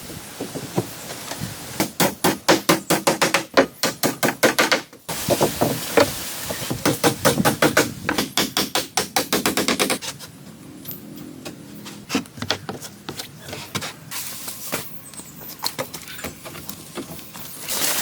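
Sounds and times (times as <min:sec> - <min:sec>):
fast sharp knocks on wood: 0:01.8 - 0:05.8, 0:06.8 - 0:10.0.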